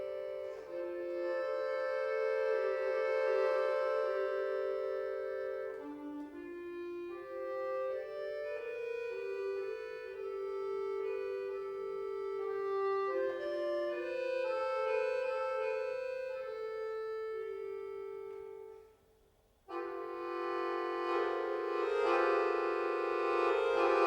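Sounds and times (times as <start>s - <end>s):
accordion playing chords: 0.0s - 24.0s.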